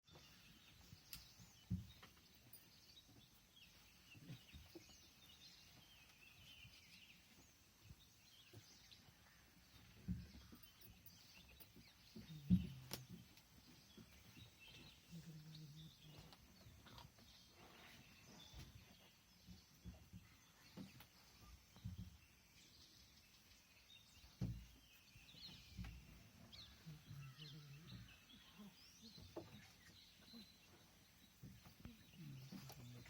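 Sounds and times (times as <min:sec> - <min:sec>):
faint bird chirps: 0:00.1 - 0:33.0.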